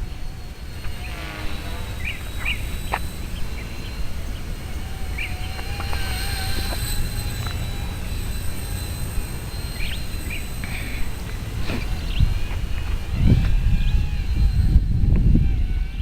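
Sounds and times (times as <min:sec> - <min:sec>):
helicopter motor whine: 0:00.0 - 0:16.0
wind buffeting microphone: 0:00.0 - 0:16.0.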